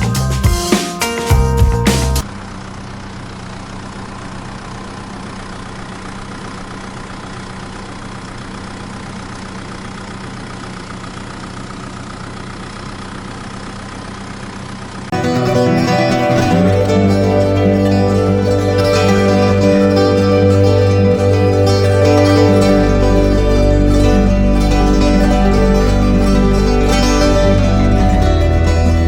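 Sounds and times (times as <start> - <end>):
tractor engine droning: 1.6 - 29.0.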